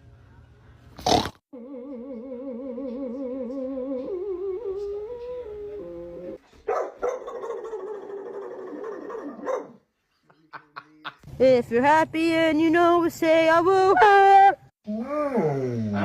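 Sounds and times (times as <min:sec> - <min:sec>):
dog yipping and barking: 0:06.7 - 0:09.8.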